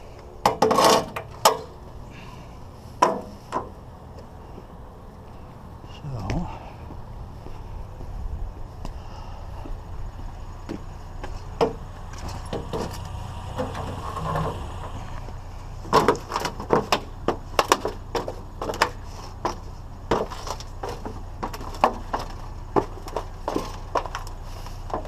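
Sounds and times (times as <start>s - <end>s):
scrap knocking and clattering: 0.4s - 1.7s, 11.4s - 15.1s, 15.8s - 25.0s
steady low rumble: 1.1s - 25.0s.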